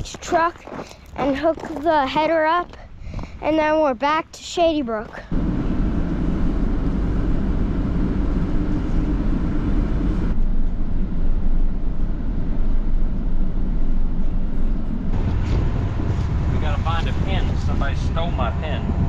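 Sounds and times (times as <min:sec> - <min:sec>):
heavy vehicle engine running: 0:05.3 - 0:19.0.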